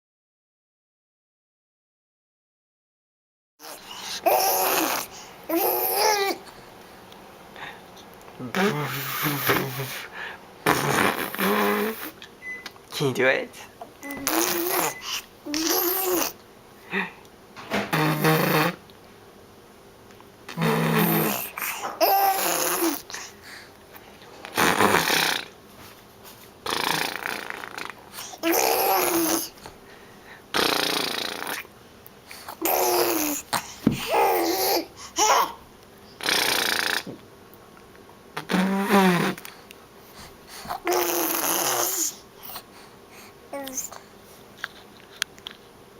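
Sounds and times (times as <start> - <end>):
baby blowing raspberries and babbling: 3.6 - 6.5, 8.5 - 10.0, 10.6 - 12.2, 14.0 - 16.4, 17.9 - 18.8, 20.5 - 23.2, 24.5 - 25.5, 26.6 - 29.6, 32.5 - 35.6, 36.2 - 37.2, 38.4 - 39.6, 40.5 - 42.7.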